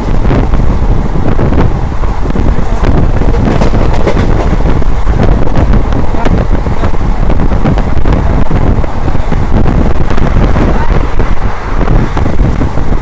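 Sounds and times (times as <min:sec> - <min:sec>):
train running loudly: 0:00.0 - 0:13.0
wind buffeting microphone: 0:00.0 - 0:13.0
clacks and rattles: 0:02.5 - 0:07.0.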